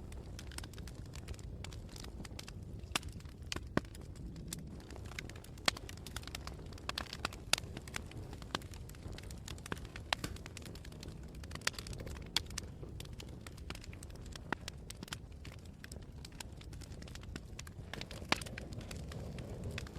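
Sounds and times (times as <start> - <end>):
campfire crackling: 0.0 - 19.9.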